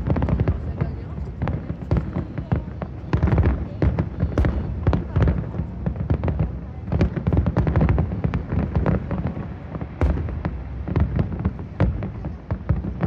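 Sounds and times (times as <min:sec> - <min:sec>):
fireworks bursting: 0:00.0 - 0:13.0
low booming: 0:03.2 - 0:13.0.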